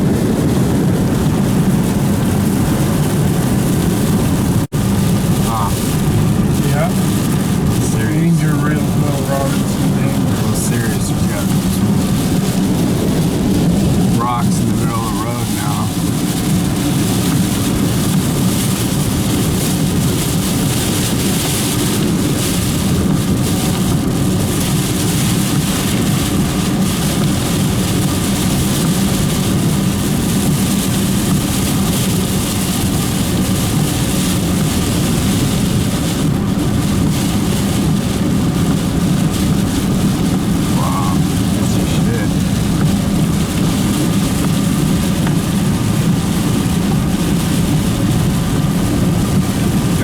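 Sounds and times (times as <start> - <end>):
car engine hum: 0.0 - 50.0
tyres hissing on road: 4.7 - 50.0.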